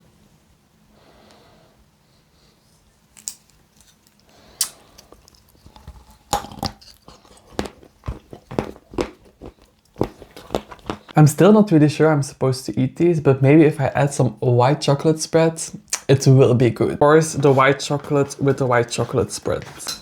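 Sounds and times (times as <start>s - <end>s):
crunchy bites and chewing: 3.1s - 11.2s.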